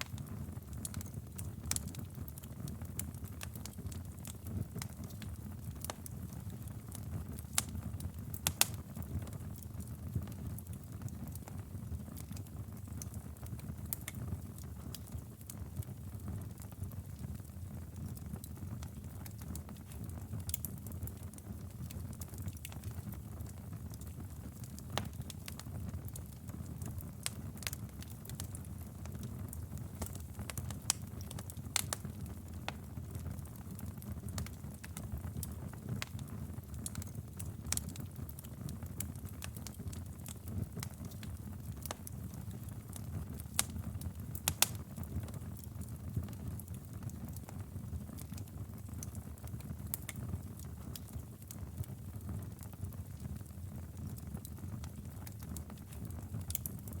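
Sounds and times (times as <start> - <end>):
fire crackling and popping: 0.0 - 57.0
fire flames rumbling: 26.6 - 51.0.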